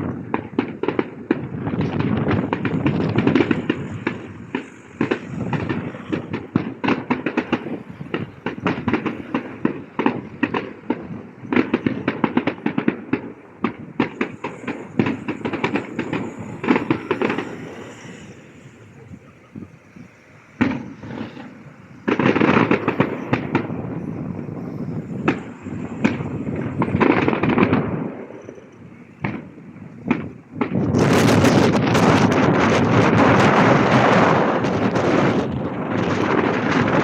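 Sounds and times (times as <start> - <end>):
fireworks booming: 0.0 - 37.0
fireworks crackling: 0.0 - 37.0.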